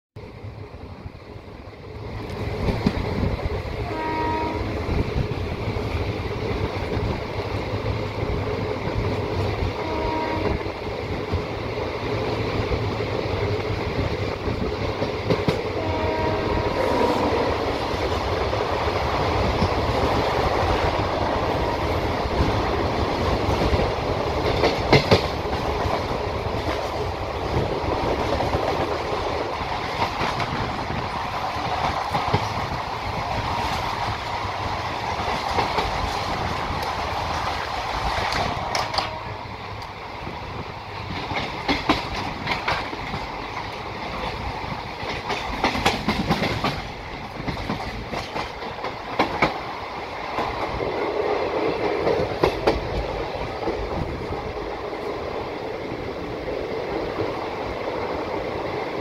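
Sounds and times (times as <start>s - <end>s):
train wheels rumbling on rails: 0.2s - 59.0s
train horn blasts: 3.8s - 4.9s, 9.7s - 10.8s, 15.7s - 17.7s, 21.4s - 22.0s, 38.6s - 39.6s.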